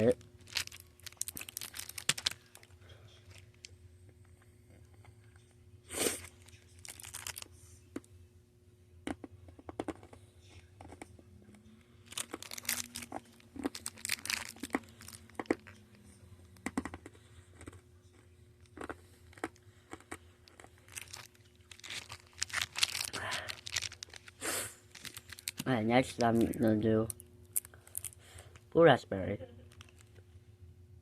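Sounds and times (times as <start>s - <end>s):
plastic candy wrapper crinkling: 0.0s - 3.8s, 6.2s - 7.6s, 12.0s - 28.8s, 29.6s - 30.2s.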